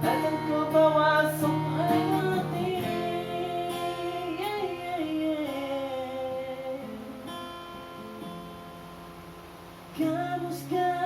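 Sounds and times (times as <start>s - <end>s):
person singing pop ballad: 0.0s - 7.6s, 10.0s - 11.0s
acoustic guitar chords: 0.0s - 11.0s.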